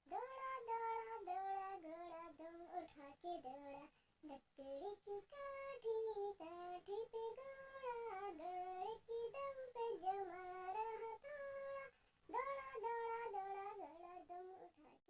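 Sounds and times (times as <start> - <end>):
child singing: 0.0 - 15.0.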